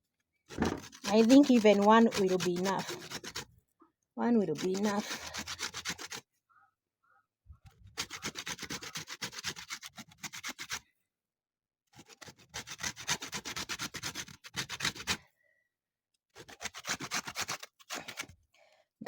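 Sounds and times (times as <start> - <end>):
lemon peel rasping on grater: 0.6 - 3.5, 4.4 - 6.2, 8.0 - 10.8.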